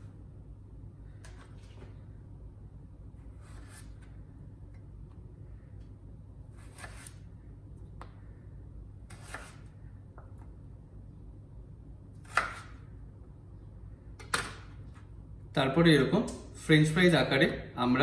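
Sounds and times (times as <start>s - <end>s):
knife slicing through potato: 3.2s - 4.2s, 6.5s - 7.2s, 9.1s - 9.7s, 12.2s - 12.8s.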